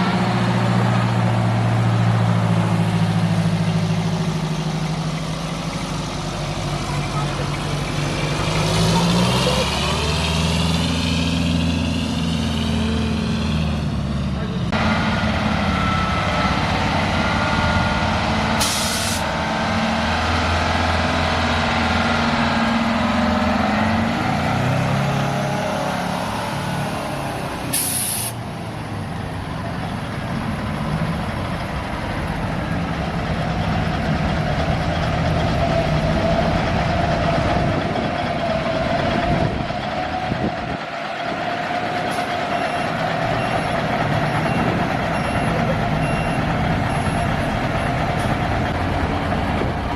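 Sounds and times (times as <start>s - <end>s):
truck engine running: 0.0s - 49.9s
reversing beeper: 15.2s - 19.2s, 42.1s - 48.0s
air brake hisses: 18.6s - 19.3s, 27.7s - 28.4s.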